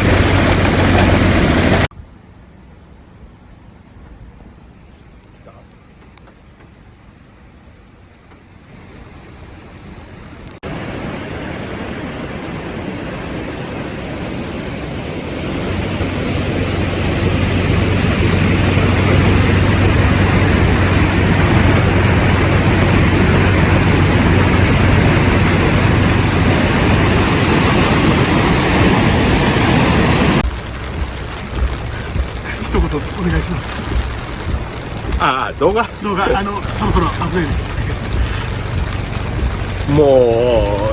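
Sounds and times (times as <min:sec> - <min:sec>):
floodwater roaring: 0:00.0 - 0:01.9, 0:06.7 - 0:40.9
low hum: 0:15.6 - 0:40.9.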